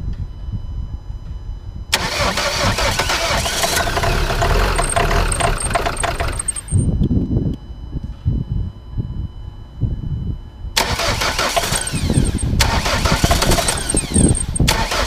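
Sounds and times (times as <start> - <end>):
diesel engine rumble: 1.9 - 7.0, 10.8 - 15.0
starter motor cranking: 2.0 - 6.9, 10.8 - 15.0.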